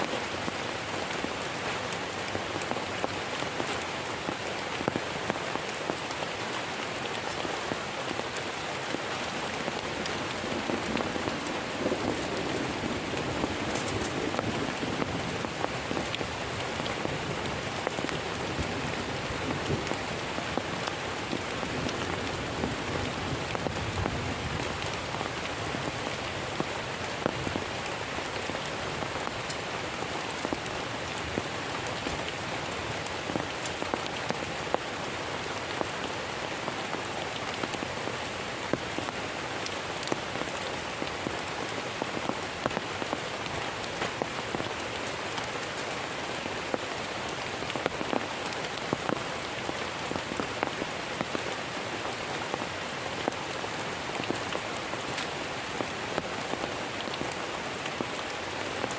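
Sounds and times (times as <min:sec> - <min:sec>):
heavy rain falling: 0:00.0 - 0:58.9
raindrop ticks: 0:08.3 - 0:35.9, 0:53.2 - 0:58.9.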